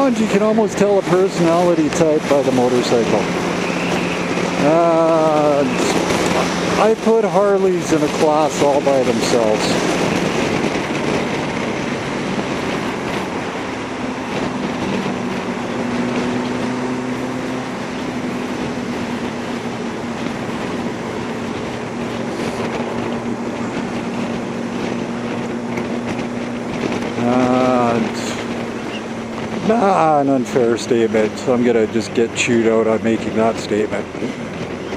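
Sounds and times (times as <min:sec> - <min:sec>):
motorcycle engine at low revs: 0:00.0 - 0:34.9
wind noise on microphone: 0:00.0 - 0:34.9.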